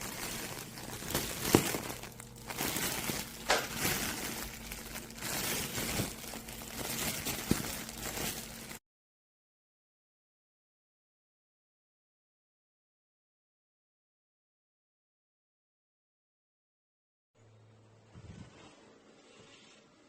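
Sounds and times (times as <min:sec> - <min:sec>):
plastic wrapping crinkling: 0:00.0 - 0:08.8.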